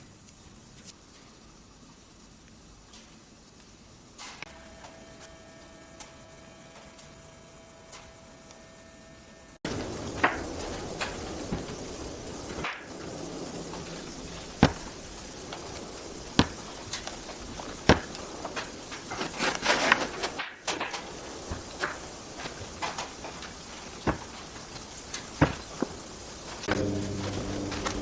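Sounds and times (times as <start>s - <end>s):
clicks and rustling: 9.7s - 28.0s
knocks and taps of wood and tools: 16.4s - 17.2s, 24.0s - 26.0s.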